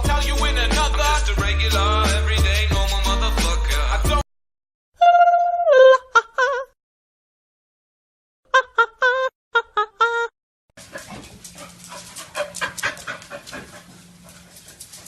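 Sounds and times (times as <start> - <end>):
dog panting and snuffling: 10.8 - 15.0.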